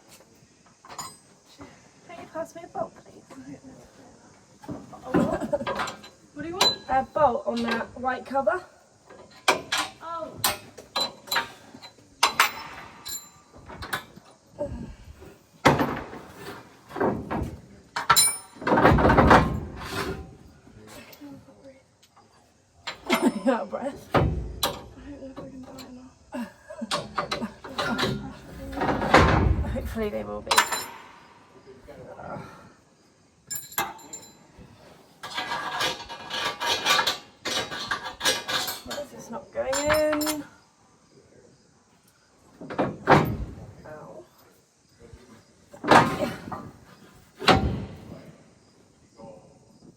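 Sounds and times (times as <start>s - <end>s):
metal clanks and knocks: 0.8s - 1.4s, 9.1s - 14.3s, 15.6s - 20.4s, 22.9s - 25.9s, 26.8s - 31.4s, 33.5s - 34.4s, 35.2s - 40.4s
metal ringing clink: 18.1s - 18.6s, 30.5s - 31.2s, 33.5s - 34.5s
metal rattling clatter: 35.2s - 40.5s.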